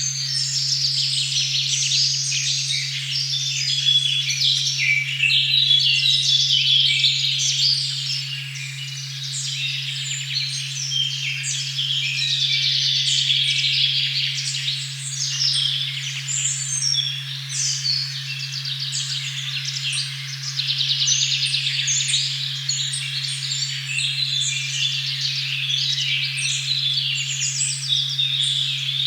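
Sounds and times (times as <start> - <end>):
birds chirping and trilling: 15.2 - 29.0.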